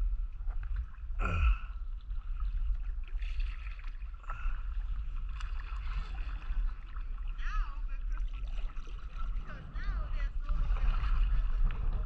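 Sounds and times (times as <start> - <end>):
paddle strokes in water: 0.0 - 12.0
short water splashes: 0.0 - 12.0
low rumble: 4.5 - 12.0.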